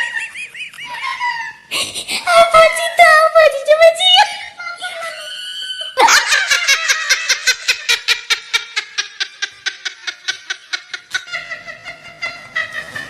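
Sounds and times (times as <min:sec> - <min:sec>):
person laughing hard: 0:00.0 - 0:02.3, 0:05.8 - 0:13.0.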